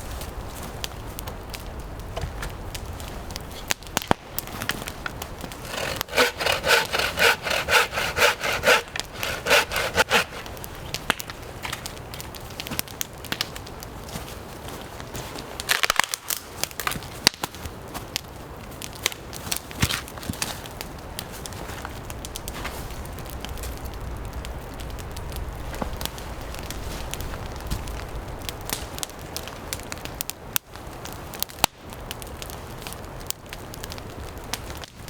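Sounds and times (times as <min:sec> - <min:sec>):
saw rasping through wood: 0:05.5 - 0:10.6.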